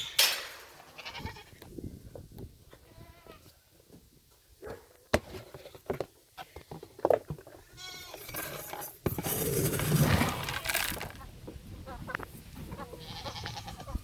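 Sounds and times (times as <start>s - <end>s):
goats bleating: 7.8s - 8.3s, 13.0s - 14.0s.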